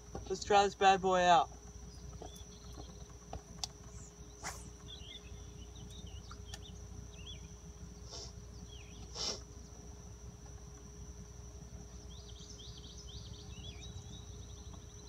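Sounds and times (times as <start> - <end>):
high-pitched insect drone: 3.6 - 15.0
faint bird chirps: 3.8 - 9.8, 11.8 - 15.0.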